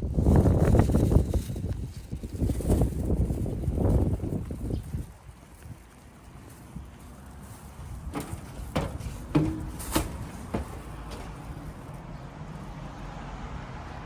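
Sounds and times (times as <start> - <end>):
short knocks: 8.1 - 11.7.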